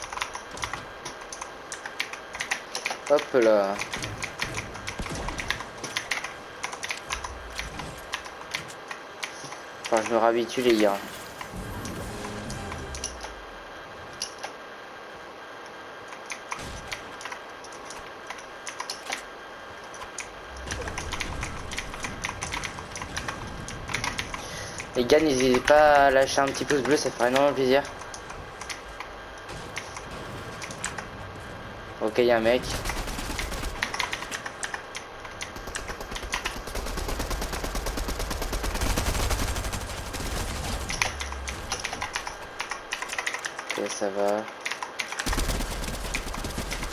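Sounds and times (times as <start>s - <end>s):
video game automatic gunfire: 32.4s - 43.4s, 45.0s - 46.9s
low rumble: 39.3s - 42.5s.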